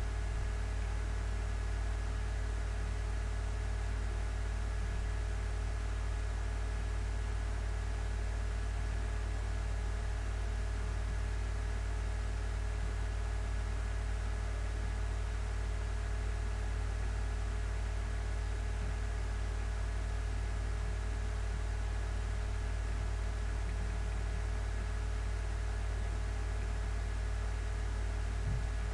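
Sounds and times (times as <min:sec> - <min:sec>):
low hum: 0:28.2 - 0:28.9.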